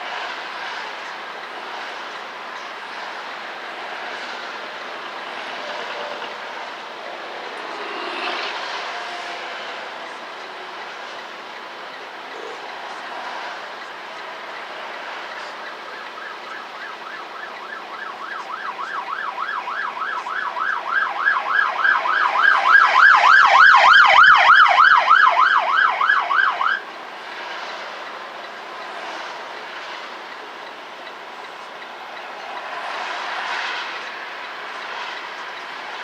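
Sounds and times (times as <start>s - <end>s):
steady rushing noise: 0.0s - 20.4s, 25.8s - 36.0s
emergency siren yelping: 5.2s - 10.2s, 14.6s - 26.9s.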